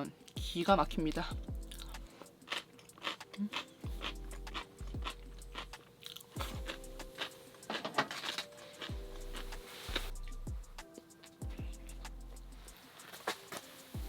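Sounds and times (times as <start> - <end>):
soft background music: 0.0 - 14.0
person chewing crunchy radish: 1.6 - 10.1.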